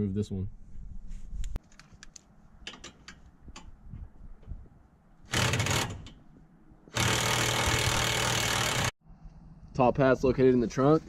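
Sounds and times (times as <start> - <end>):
power wrench running: 5.3 - 6.1, 6.9 - 8.9.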